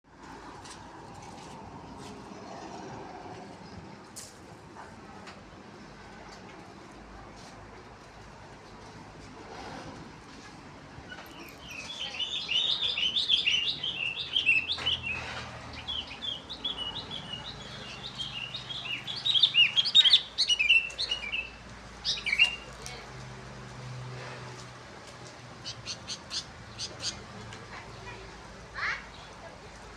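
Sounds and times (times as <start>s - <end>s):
small birds chirping: 11.1s - 23.0s, 25.6s - 27.3s.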